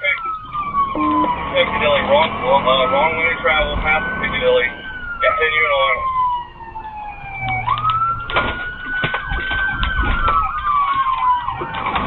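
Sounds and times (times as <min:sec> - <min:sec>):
low vehicle rumble: 0:00.0 - 0:12.0
police siren wailing: 0:00.0 - 0:12.0.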